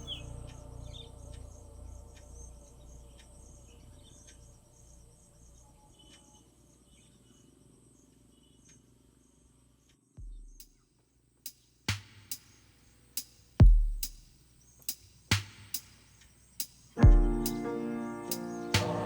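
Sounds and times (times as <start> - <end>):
low background sound: 0.0 - 8.5, 12.0 - 19.0
faint chirps: 0.0 - 9.6.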